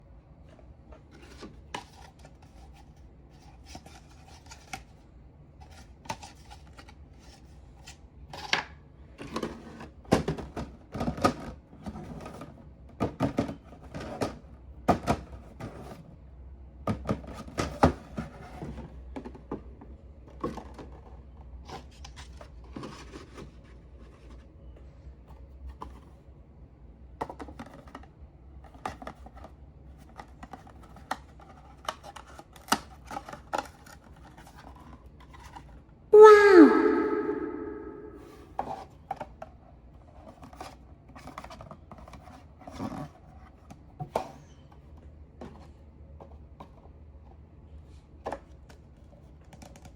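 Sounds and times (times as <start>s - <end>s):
cups and packaging handled: 1.0s - 5.0s.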